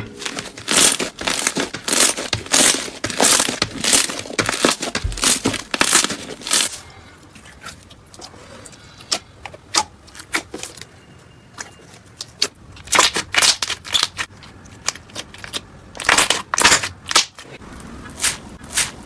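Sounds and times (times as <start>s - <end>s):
slime crackling and popping: 0.0s - 6.8s, 12.2s - 17.4s.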